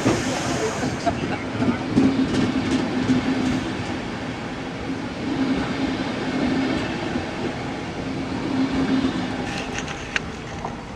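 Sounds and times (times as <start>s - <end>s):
train carriages rolling over rails: 5.2s - 10.9s.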